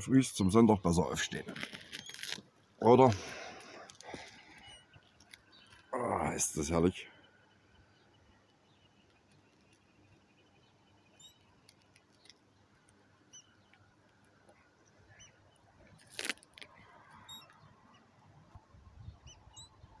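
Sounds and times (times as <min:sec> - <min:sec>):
high bird chirps: 0:17.2 - 0:17.7.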